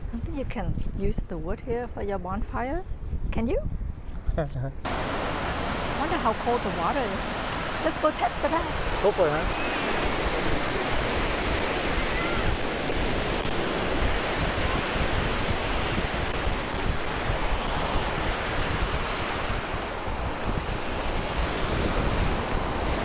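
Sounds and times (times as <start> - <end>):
wind buffeting microphone: 0.0 - 23.0
ocean surf washing on beach: 4.9 - 23.0.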